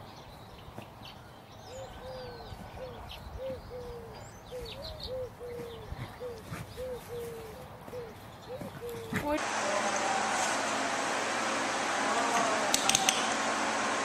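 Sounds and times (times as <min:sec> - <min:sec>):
small birds chirping: 0:00.0 - 0:09.4
dove cooing: 0:01.7 - 0:09.4.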